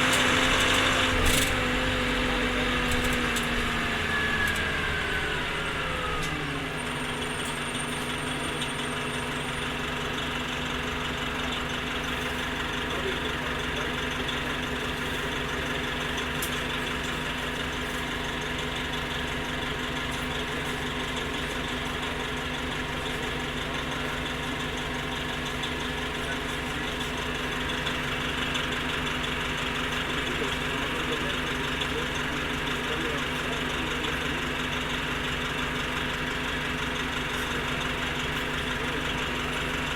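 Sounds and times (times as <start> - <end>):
bus engine idling: 0.0 - 39.9.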